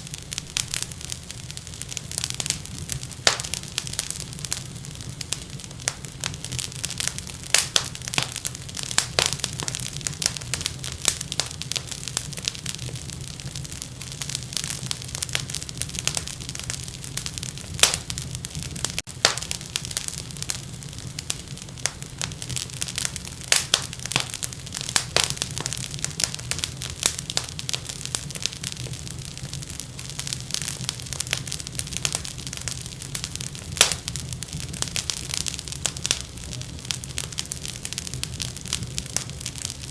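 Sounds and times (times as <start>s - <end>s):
wood fire crackling and popping: 0.0s - 39.9s
low steady rumble: 31.6s - 39.9s.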